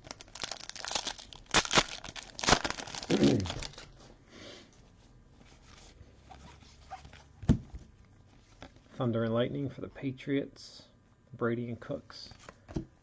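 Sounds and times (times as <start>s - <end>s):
foil wrapper crinkling: 0.0s - 4.0s.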